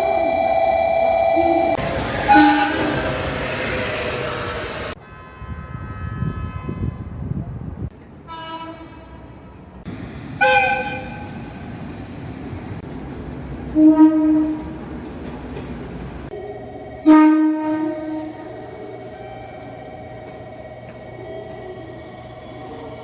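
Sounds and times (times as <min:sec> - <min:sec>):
running train rumble: 0:01.2 - 0:05.0, 0:05.6 - 0:23.0
train horn blasts: 0:02.2 - 0:03.1, 0:05.0 - 0:07.2, 0:08.3 - 0:09.2, 0:10.4 - 0:11.4, 0:13.8 - 0:14.8, 0:17.0 - 0:18.6.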